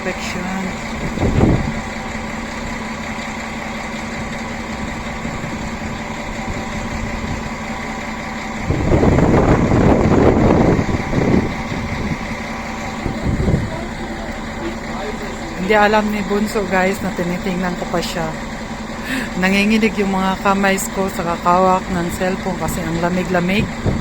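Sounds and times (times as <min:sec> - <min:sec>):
train engine hum: 0:00.0 - 0:24.0
wind buffeting microphone: 0:00.7 - 0:02.9, 0:04.0 - 0:17.2, 0:22.0 - 0:24.0.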